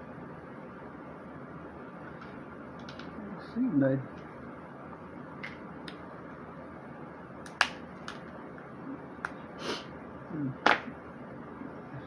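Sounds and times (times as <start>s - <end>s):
crab shells cracking by hand: 7.4s - 8.3s.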